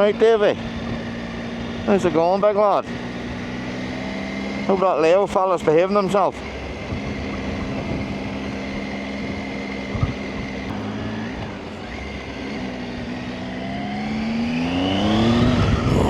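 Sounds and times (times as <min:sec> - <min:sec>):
motorcycle engine running: 0:00.0 - 0:16.0
rumbling wind noise: 0:06.4 - 0:12.0, 0:14.8 - 0:16.0.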